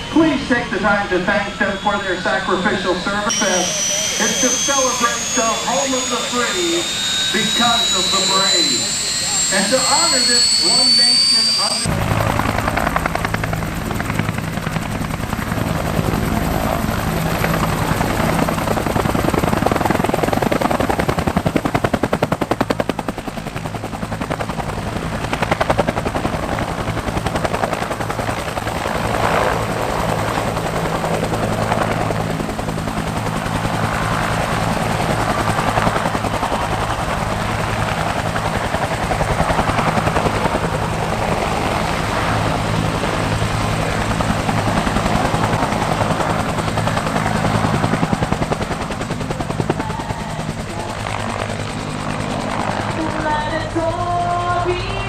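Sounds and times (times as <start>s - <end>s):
low engine drone: 0.0s - 12.3s
helicopter rotor chop: 0.0s - 55.0s.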